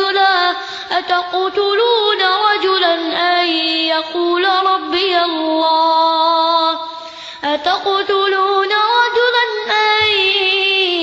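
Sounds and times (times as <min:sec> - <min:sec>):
child chanting melodically: 0:00.0 - 0:11.0
short breath: 0:00.6 - 0:00.9, 0:06.8 - 0:07.5.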